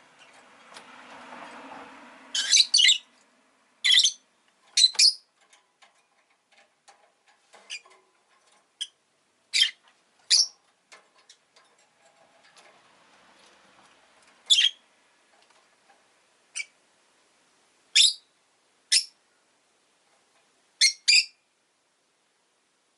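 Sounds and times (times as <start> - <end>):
faint rushing background noise: 0.0 - 20.8
lovebird chirping: 2.3 - 3.2, 3.8 - 5.3, 8.8 - 10.6, 14.5 - 14.8, 16.5 - 16.8, 17.9 - 18.3, 18.9 - 19.2, 20.8 - 21.5.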